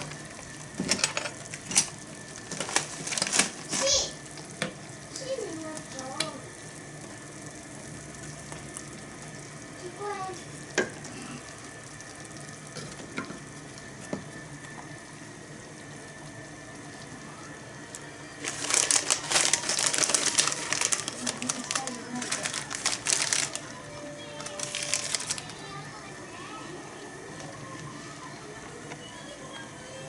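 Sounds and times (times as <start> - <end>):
pot bubbling and sizzling: 0.0 - 28.8
campfire crackles: 18.3 - 25.8.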